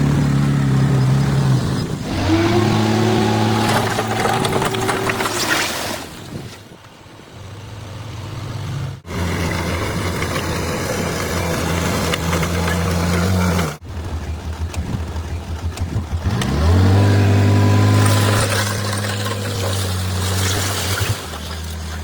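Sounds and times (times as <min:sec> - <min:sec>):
bulldozer diesel engine: 0:00.0 - 0:05.6, 0:06.4 - 0:22.0.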